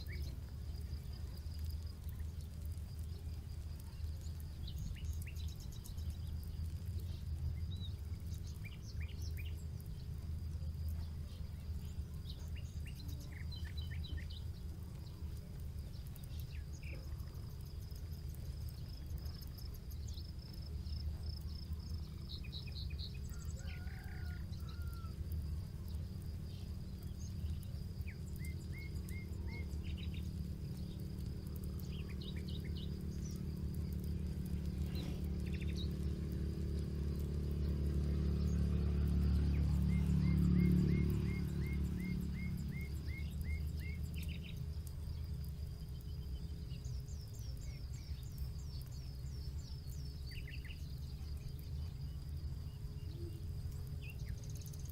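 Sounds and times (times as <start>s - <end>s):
low rumble: 0.0s - 23.6s, 24.5s - 54.8s
campfire crackling: 0.0s - 54.9s
insect trilling: 0.0s - 54.9s
birds chirping: 39.3s - 54.9s.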